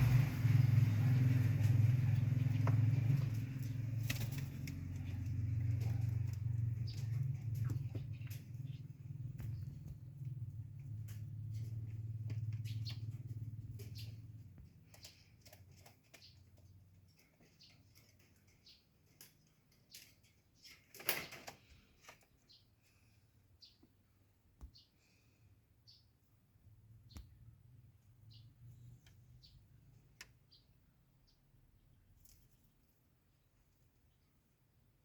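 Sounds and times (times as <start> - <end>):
pigeon wing flap: 0.0 - 8.6
pigeons clicking and scuffing: 0.0 - 23.1.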